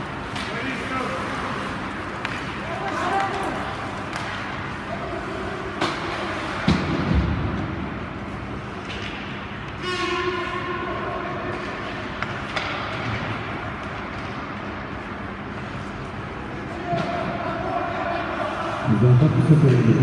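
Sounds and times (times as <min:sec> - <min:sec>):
ice rink horn: 0:09.7 - 0:11.5.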